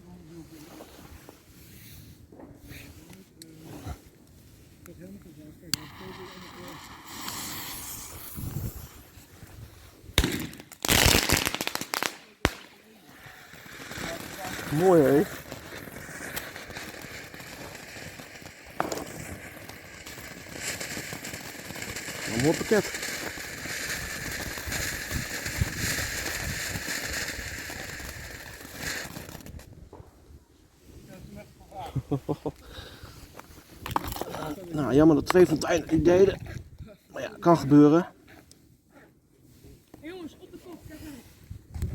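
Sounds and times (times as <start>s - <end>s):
firework crackling pops: 5.2s - 30.2s, 33.3s - 36.2s
firework bangs: 5.7s - 9.5s, 10.1s - 30.1s.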